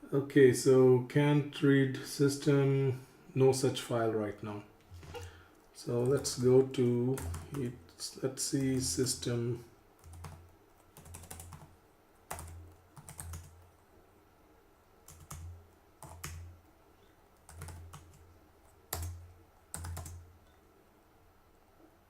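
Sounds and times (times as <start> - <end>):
computer keyboard typing: 7.1 - 7.7, 10.0 - 11.7, 12.3 - 13.7, 15.0 - 16.5, 17.4 - 20.2.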